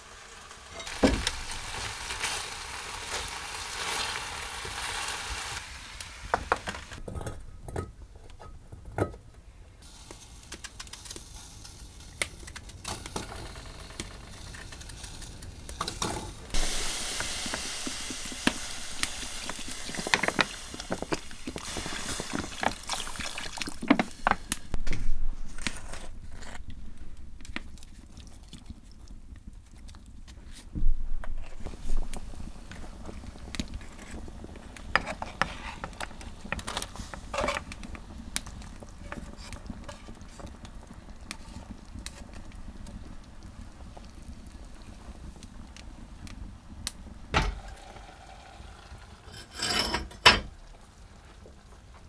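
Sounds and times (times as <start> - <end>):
utensil scraping a pan: 0.0 - 5.6, 10.0 - 24.8, 33.8 - 40.6, 49.2 - 50.5
food sizzling in a frying pan: 0.0 - 7.0, 9.8 - 24.8, 31.6 - 52.0.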